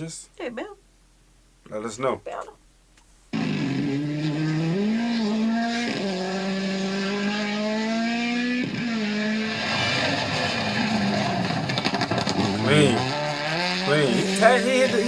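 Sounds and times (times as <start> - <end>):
rally car engine accelerating: 3.4 - 15.0
noisy rush: 10.1 - 15.0.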